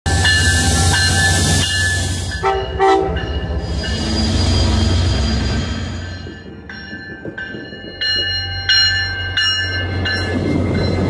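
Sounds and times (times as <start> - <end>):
locomotive rumbling: 0.1 - 11.0
train horn blasts: 2.4 - 3.3
high squealing tones: 3.5 - 6.3.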